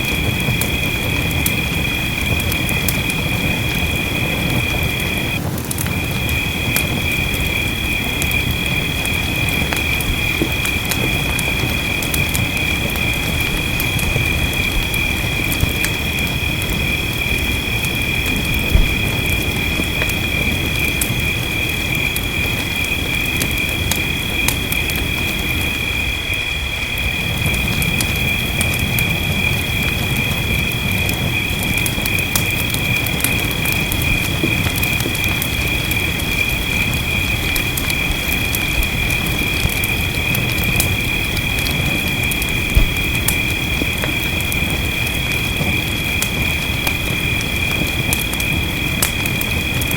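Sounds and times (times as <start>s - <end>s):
rain: 0.0s - 49.9s
wood fire crackling and popping: 0.0s - 49.9s
low thump: 42.8s - 43.2s.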